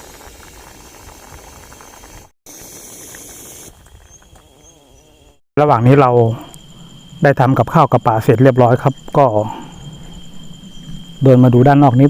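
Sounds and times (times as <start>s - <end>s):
pot simmering and bubbling: 0.0s - 4.5s.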